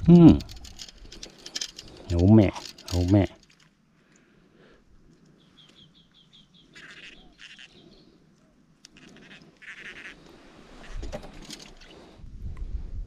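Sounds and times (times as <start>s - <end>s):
short raspy bursts: 6.7s - 7.8s, 8.9s - 11.0s.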